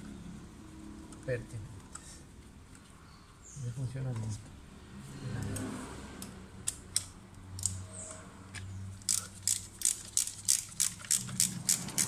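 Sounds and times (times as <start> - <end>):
ratchet wrench clicking: 6.2 - 12.0.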